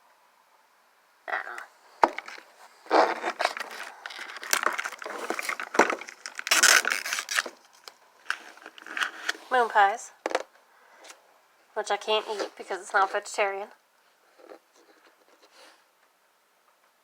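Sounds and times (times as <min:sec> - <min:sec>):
plastic packaging crinkling: 0:02.0 - 0:09.5.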